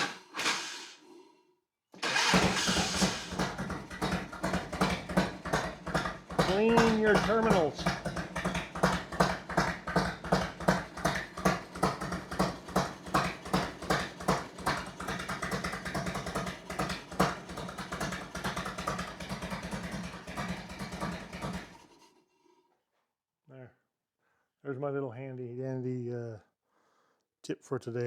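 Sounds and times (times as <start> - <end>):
motorcycle engine running: 2.0 - 21.8.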